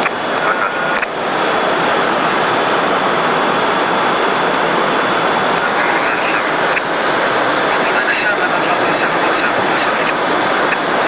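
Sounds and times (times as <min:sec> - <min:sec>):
airliner cabin noise in flight: 0:00.0 - 0:11.0.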